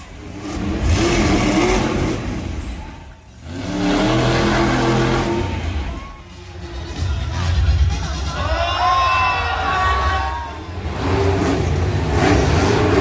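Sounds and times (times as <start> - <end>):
monster truck engine revving: 0.0 - 6.0, 10.7 - 13.0.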